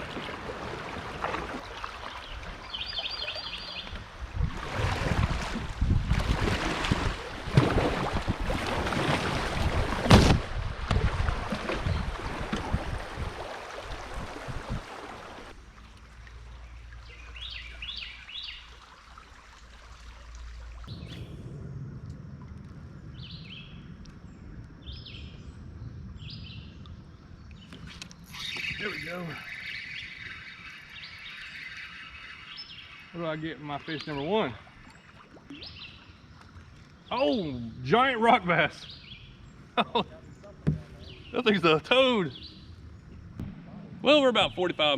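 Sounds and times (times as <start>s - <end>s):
rushing river water: 0.0s - 21.0s, 28.3s - 37.5s
bird chirping: 16.6s - 18.7s, 27.5s - 36.2s, 38.7s - 43.2s.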